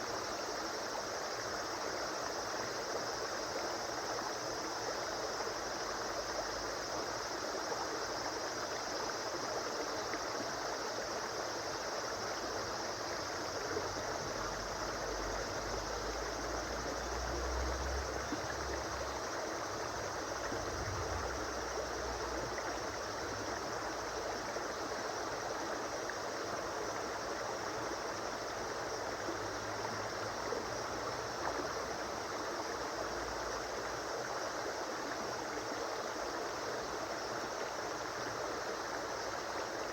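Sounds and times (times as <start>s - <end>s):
stream water flowing over stones: 0.1s - 39.9s
low rumble: 20.5s - 22.1s.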